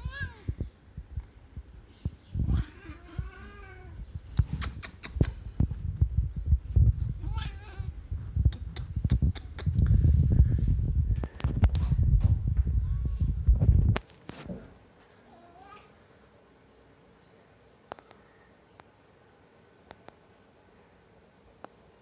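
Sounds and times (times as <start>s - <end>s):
cat meowing: 2.5s - 4.0s
low rumbling and knocking: 9.8s - 14.0s.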